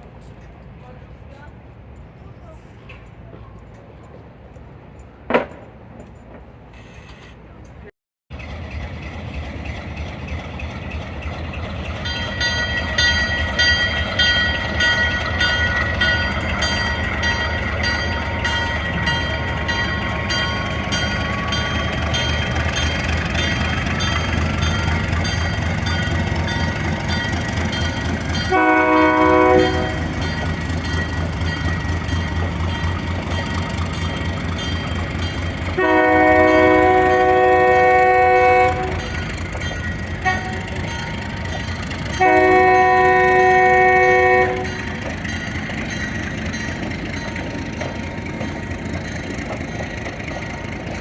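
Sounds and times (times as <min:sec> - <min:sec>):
train rumbling: 0:00.0 - 0:51.0
train horn blast: 0:28.4 - 0:30.2, 0:35.7 - 0:39.2, 0:40.2 - 0:40.8, 0:42.1 - 0:44.9.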